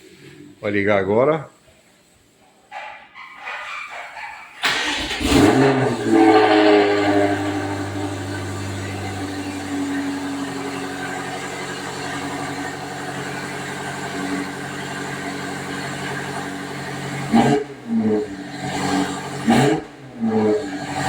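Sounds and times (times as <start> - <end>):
sharp engine bursts: 4.6 - 13.2
car engine idling: 4.6 - 21.0.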